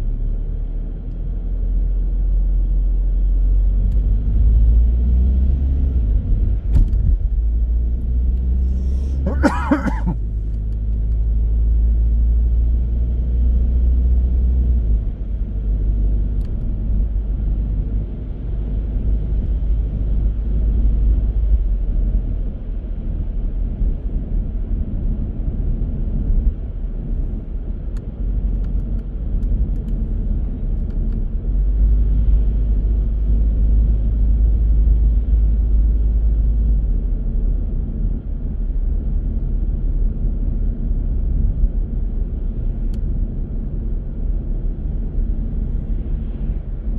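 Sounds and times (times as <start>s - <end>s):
car engine and road noise: 0.0s - 46.9s.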